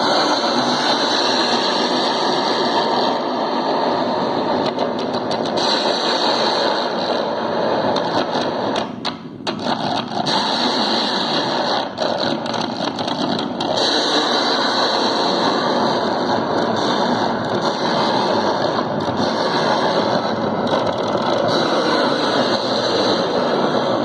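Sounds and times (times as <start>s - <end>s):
crackling clicks: 4.5s - 15.6s.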